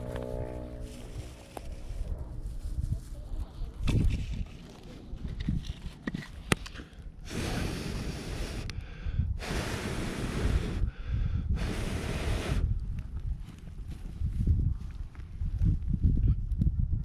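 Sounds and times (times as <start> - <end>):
low rumble: 0.0 - 5.8
heavy breathing: 6.7 - 12.6.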